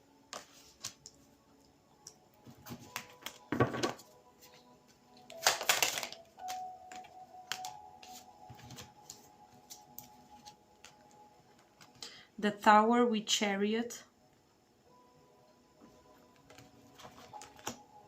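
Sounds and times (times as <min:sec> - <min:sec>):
faint background music: 0:00.0 - 0:18.0
cards clicking and tapping: 0:02.0 - 0:04.6, 0:05.2 - 0:12.0, 0:16.4 - 0:17.8.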